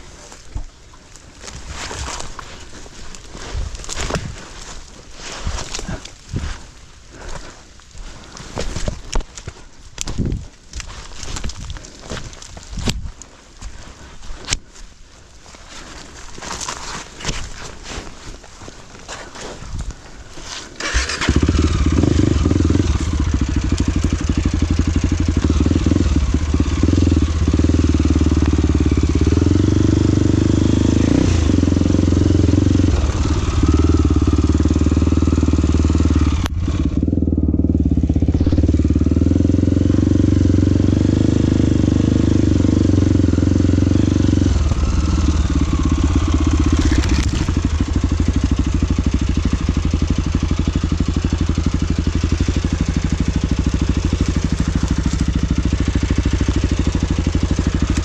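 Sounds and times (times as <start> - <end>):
motorcycle engine running: 20.8 - 58.0.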